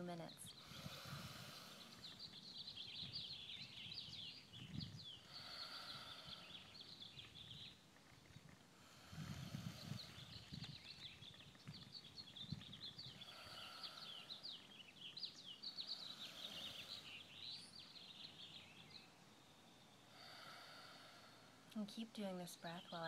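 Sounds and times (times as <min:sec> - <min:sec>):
birds chirping: 0:00.0 - 0:23.0
breathing through the nose: 0:00.5 - 0:02.4, 0:05.0 - 0:07.0, 0:08.8 - 0:10.8, 0:13.0 - 0:14.8, 0:15.8 - 0:17.5, 0:20.1 - 0:21.7.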